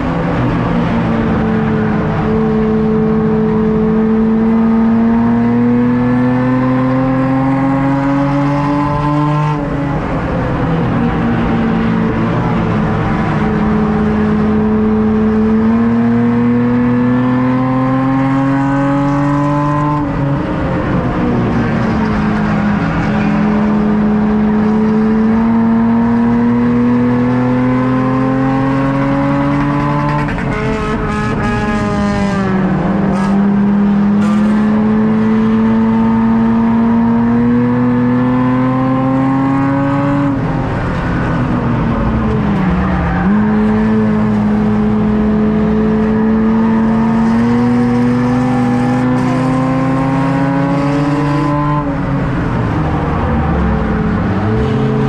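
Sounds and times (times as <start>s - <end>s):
race car engine: 0.0s - 55.0s.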